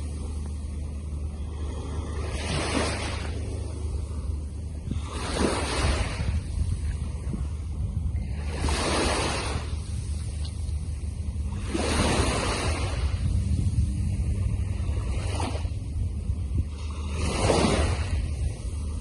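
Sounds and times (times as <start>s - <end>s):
sea waves breaking on beach: 0.0s - 19.0s
wind rumble on microphone: 0.0s - 19.0s.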